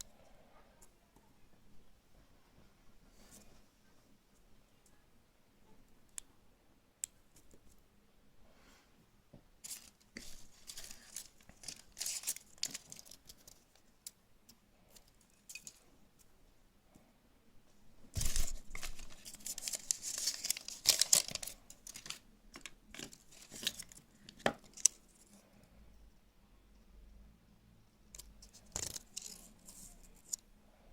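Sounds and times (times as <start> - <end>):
foil wrapper crinkling: 9.7 - 13.8, 18.2 - 25.0.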